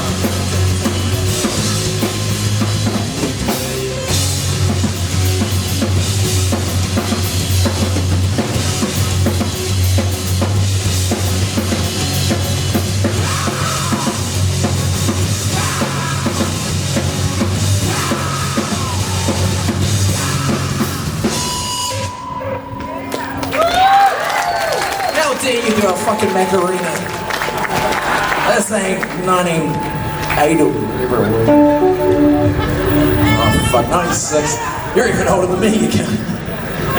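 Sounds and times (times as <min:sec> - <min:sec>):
heavy rock band playing: 0:00.0 - 0:21.6, 0:31.5 - 0:33.7
bass drum and cymbals: 0:00.0 - 0:21.8
single held tone ringing: 0:31.5 - 0:33.7.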